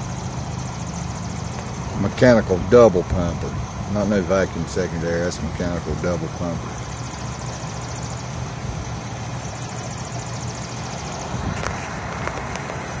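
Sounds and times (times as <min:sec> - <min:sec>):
faint rapid pulsing hiss: 0:00.0 - 0:13.0
low mechanical hum: 0:00.0 - 0:13.0
sharp clicks: 0:09.3 - 0:12.9.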